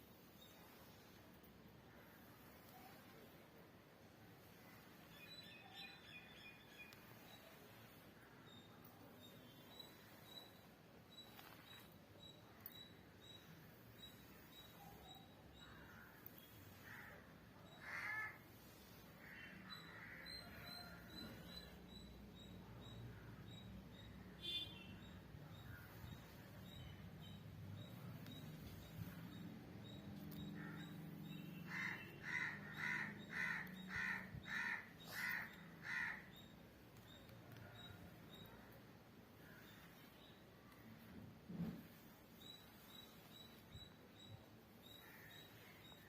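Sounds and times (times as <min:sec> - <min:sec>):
faint bird calls: 0:29.8 - 0:38.8.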